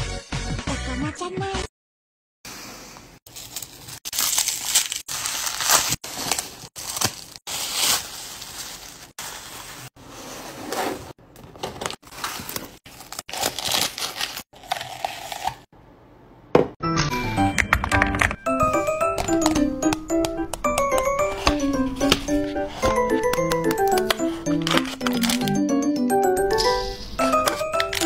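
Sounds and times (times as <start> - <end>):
music: 0.0 - 1.7, 16.8 - 28.0
bubble wrap crinkling: 3.3 - 10.0, 12.0 - 15.5, 21.2 - 25.6, 26.6 - 28.0.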